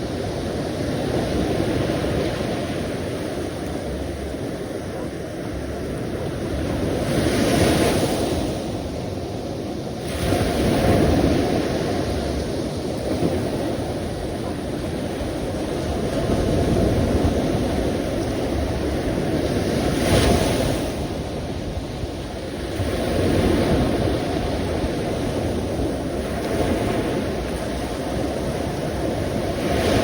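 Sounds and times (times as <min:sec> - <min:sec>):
sea waves breaking on shore: 0:00.0 - 0:30.0.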